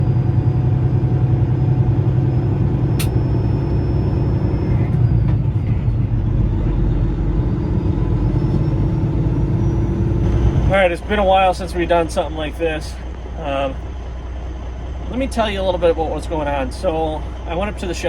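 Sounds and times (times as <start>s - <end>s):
truck engine rumbling: 0.0s - 18.0s
sharp click: 3.0s - 3.2s.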